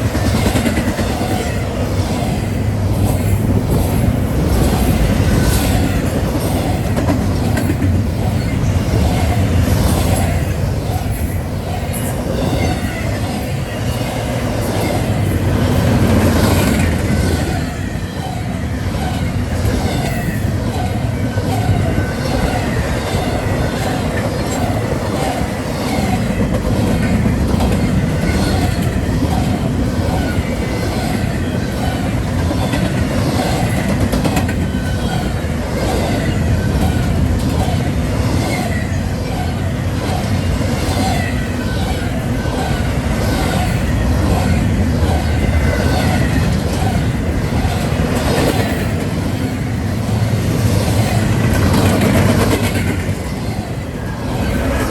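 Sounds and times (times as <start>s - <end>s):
train rolling past: 0.0s - 54.9s
wheels clicking over rail joints: 11.9s - 54.9s.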